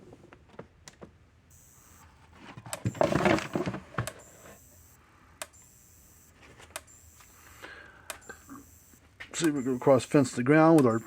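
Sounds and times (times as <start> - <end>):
rustling and handling noise: 1.8 - 4.9, 6.1 - 9.6
electric fence energizer clicking: 8.1 - 11.0.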